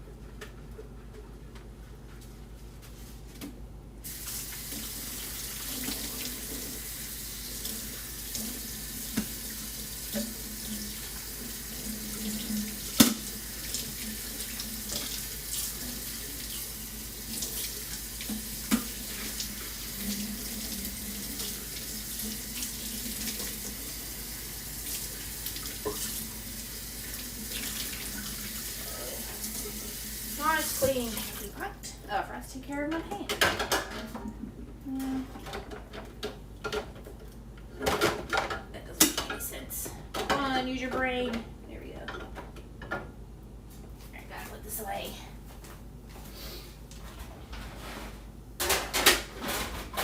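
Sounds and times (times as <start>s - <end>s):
tap water running into sink: 4.1s - 31.6s.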